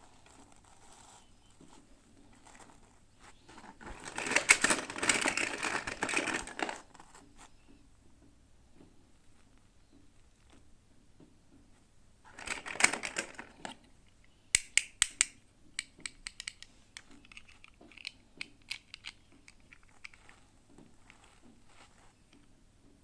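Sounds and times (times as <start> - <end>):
packaging rustling and crinkling: 0.0 - 7.3, 12.3 - 13.8
sharp clicks: 12.4 - 20.2.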